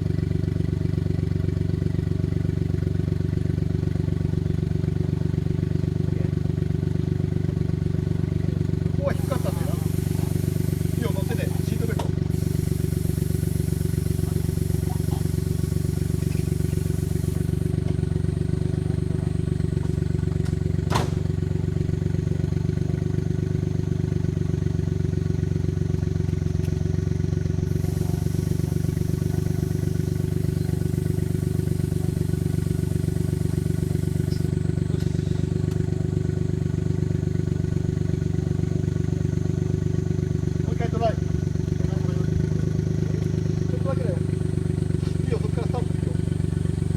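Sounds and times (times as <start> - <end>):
engine idling: 0.0 - 46.9.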